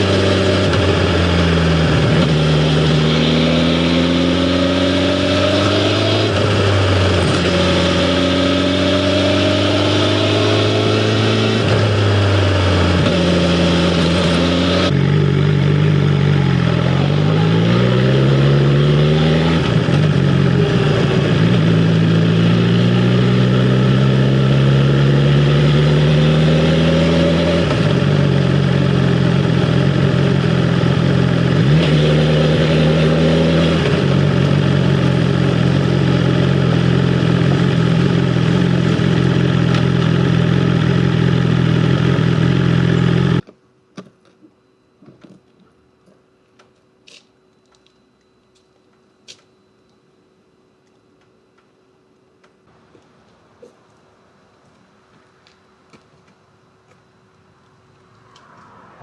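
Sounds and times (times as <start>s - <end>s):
motorcycle engine accelerating: 0.0s - 43.4s.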